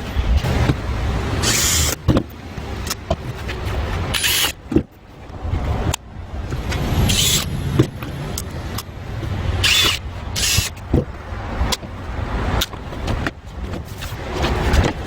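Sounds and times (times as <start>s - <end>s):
motor-driven tool rumbling: 0.4s - 2.0s, 9.5s - 10.8s.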